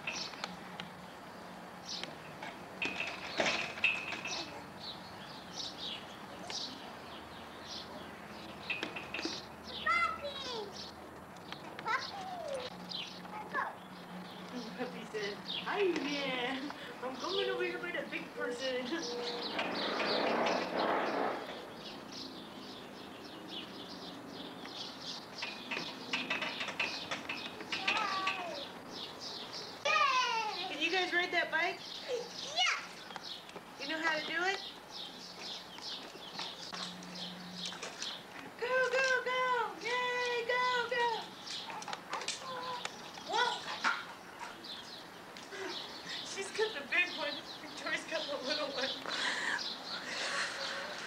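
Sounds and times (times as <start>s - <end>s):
small birds chirping: 0.0s - 51.0s
rustling noise: 19.2s - 21.7s.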